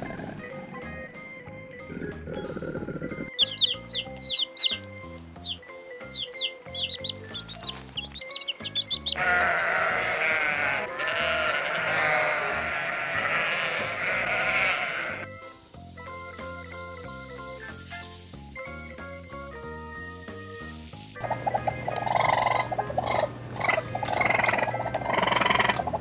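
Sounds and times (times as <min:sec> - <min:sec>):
background music: 0:00.0 - 0:26.0
high falling chirps: 0:03.2 - 0:11.0, 0:11.6 - 0:21.2
flock bleating: 0:06.3 - 0:15.4.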